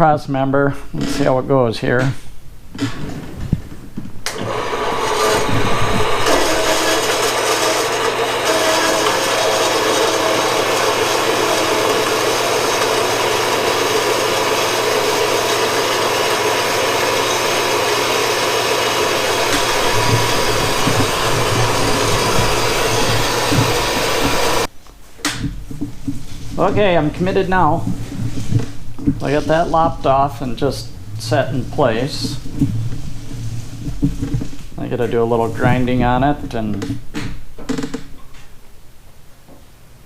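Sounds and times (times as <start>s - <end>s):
power tool cutting metal: 4.3s - 24.7s.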